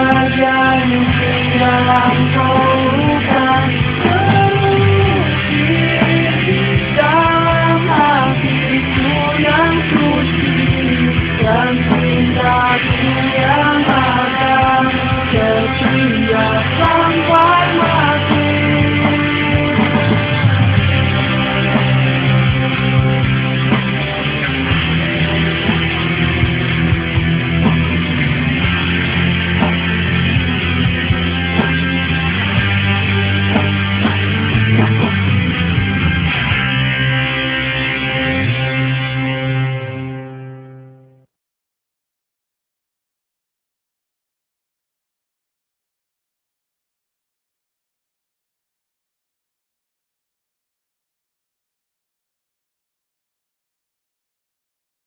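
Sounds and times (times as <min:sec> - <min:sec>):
person singing: 0:00.0 - 0:23.6
rock band playing: 0:00.0 - 0:41.0
drums steady beat: 0:01.0 - 0:36.9.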